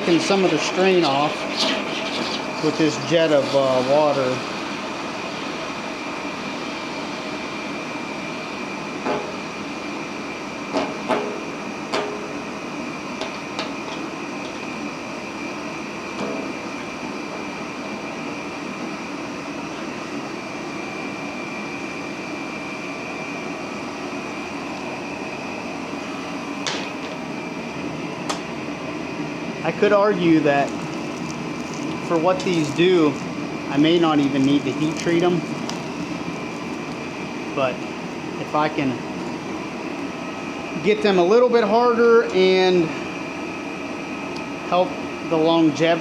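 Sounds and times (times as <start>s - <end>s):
pump jetting water: 0.0s - 7.3s, 29.7s - 40.0s
gas forge roaring: 0.0s - 46.0s.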